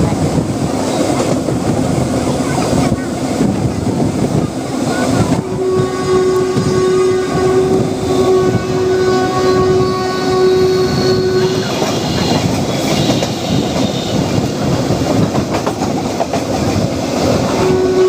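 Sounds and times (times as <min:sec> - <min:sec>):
train rumbling on track: 0:00.0 - 0:18.0
train horn blast: 0:05.4 - 0:14.4, 0:17.5 - 0:18.0.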